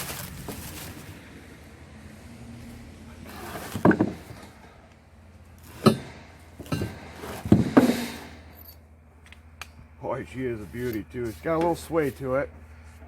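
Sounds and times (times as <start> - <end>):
metal knocks and clanks: 3.6 - 4.8, 5.7 - 8.8.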